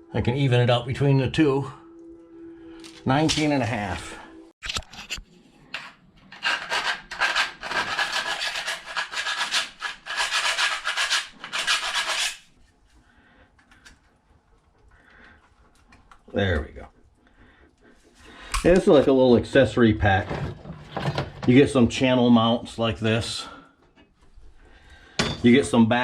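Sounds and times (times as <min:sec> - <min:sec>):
hand saw rasping strokes: 0:06.3 - 0:12.6.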